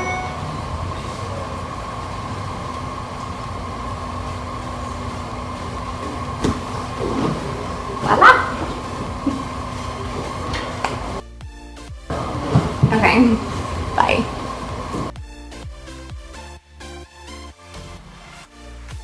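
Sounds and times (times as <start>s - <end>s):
faint constant whine: 0.0s - 11.2s, 12.1s - 15.1s
low hum and rumble: 0.0s - 11.2s, 12.1s - 15.2s.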